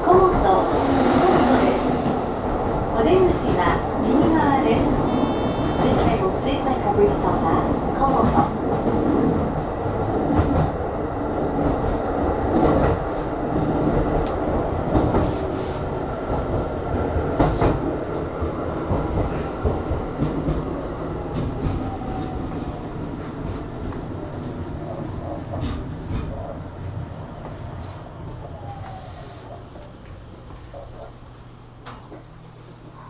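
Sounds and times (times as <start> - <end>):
train wheels rumbling on rail: 0.0 - 32.4.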